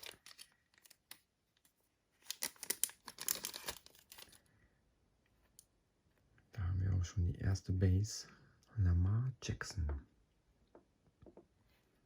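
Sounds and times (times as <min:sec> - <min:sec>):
wrapper crinkling and tearing: 0:02.2 - 0:04.4.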